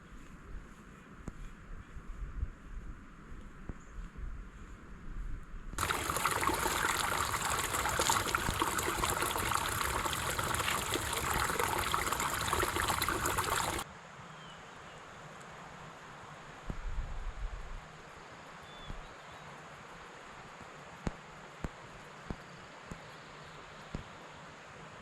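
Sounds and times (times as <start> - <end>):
faint outdoor background: 0.0 - 25.0
mountain stream rushing: 5.8 - 13.8.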